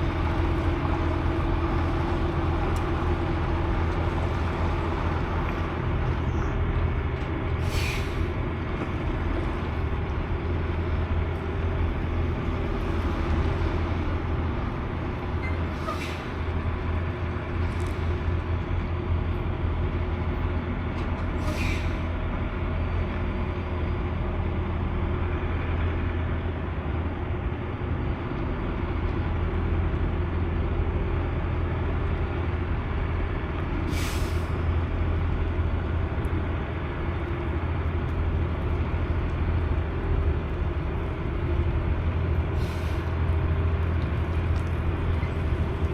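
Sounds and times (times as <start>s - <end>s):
diesel truck engine drone: 0.0s - 45.9s
short air hisses: 7.6s - 8.2s, 15.7s - 16.3s, 21.4s - 22.1s, 33.9s - 34.6s, 42.6s - 43.2s.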